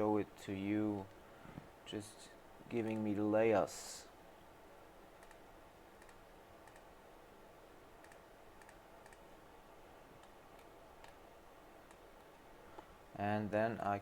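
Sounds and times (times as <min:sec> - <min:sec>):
computer mouse and key clicks: 0:02.8 - 0:03.1, 0:05.2 - 0:05.4, 0:06.0 - 0:06.9, 0:08.0 - 0:09.3, 0:10.2 - 0:11.2, 0:11.8 - 0:12.0.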